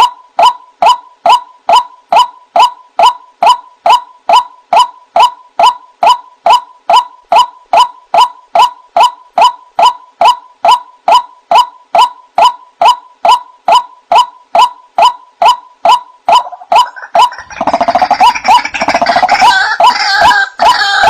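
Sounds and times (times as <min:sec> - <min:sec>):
waterhen wak calls: 0:15.9 - 0:21.0.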